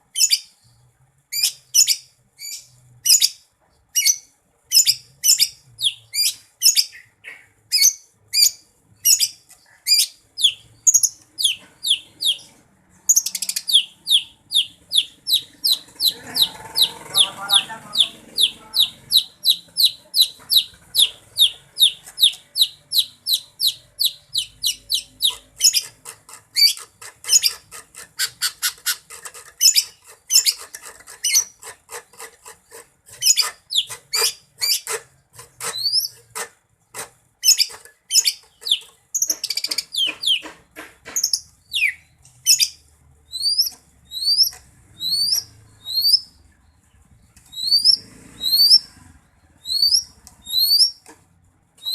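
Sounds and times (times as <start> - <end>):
bird singing whistled notes: 13.2 - 15.9, 41.7 - 46.3, 47.5 - 48.9, 49.6 - 51.0.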